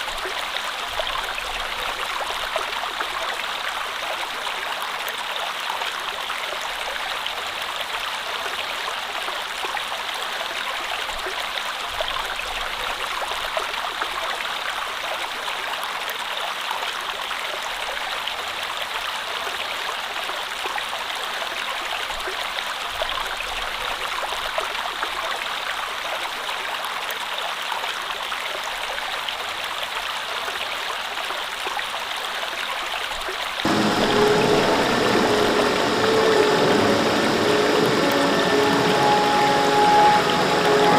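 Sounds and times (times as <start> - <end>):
stream water flowing: 0.0 - 40.9
steady pitched hum: 33.7 - 40.9.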